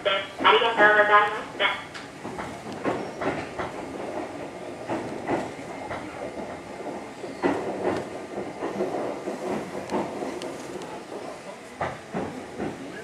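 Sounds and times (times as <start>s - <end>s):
wheels clicking over rail joints: 2.0s - 10.9s.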